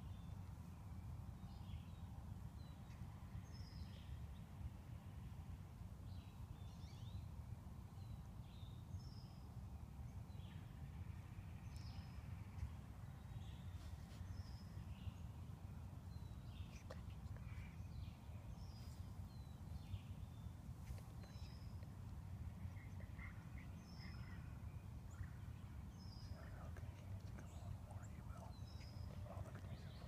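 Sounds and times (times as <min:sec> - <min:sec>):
low background rumble: 0:10.4 - 0:30.0
small birds chirping: 0:16.0 - 0:30.0.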